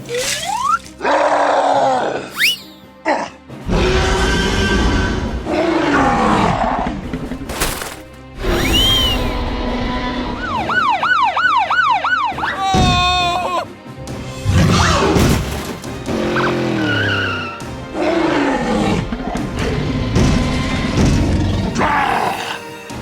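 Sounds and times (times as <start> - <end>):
background music: 0.0 - 23.0
growling roars: 3.2 - 7.2, 16.1 - 22.6
cartoon wailing siren: 10.4 - 13.5.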